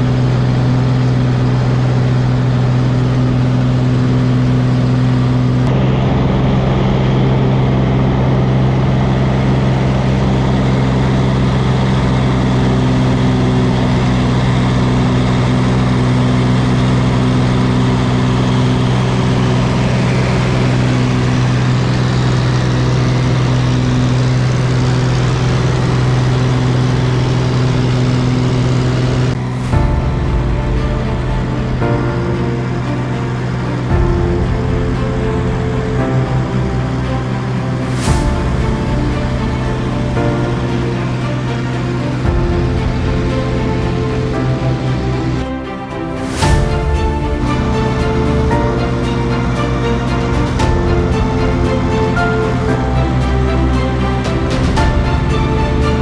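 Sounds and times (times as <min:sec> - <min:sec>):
propeller engine droning: 0:00.0 - 0:56.0.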